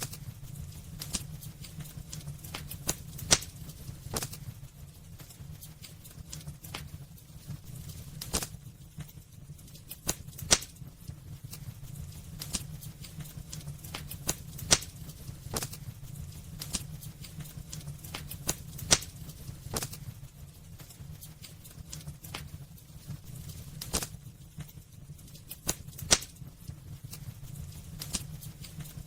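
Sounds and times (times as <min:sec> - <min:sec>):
low rumble of flames: 0:00.0 - 0:29.0
wood fire crackling and popping: 0:00.0 - 0:29.0.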